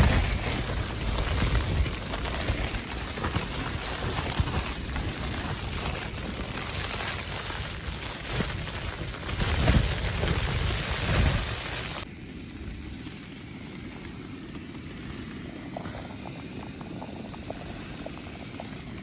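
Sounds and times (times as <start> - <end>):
blizzard wind gusting: 0.0 - 12.0
hiss of driven snow: 0.0 - 19.0.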